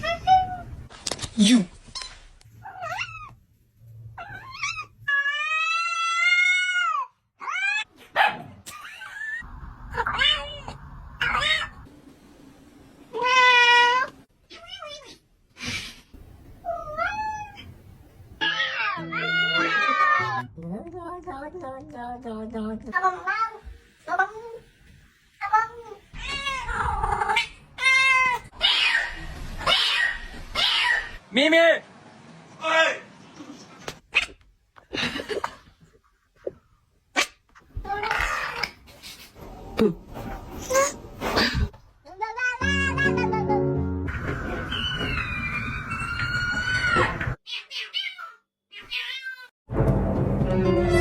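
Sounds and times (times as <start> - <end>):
cat yowling: 4.2 - 7.9, 10.0 - 11.8, 16.7 - 17.7, 18.4 - 20.4, 25.4 - 31.2, 44.7 - 49.5
cat meowing: 16.6 - 17.7, 18.4 - 20.4, 47.5 - 49.5.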